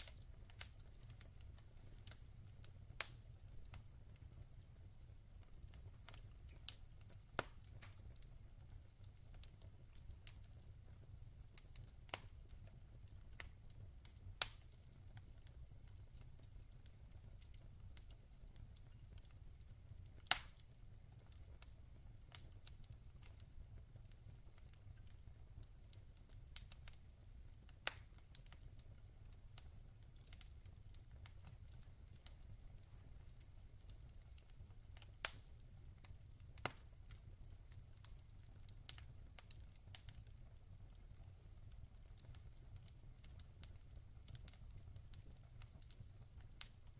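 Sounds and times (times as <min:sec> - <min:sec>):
log fire crackling: 0:00.0 - 0:46.9.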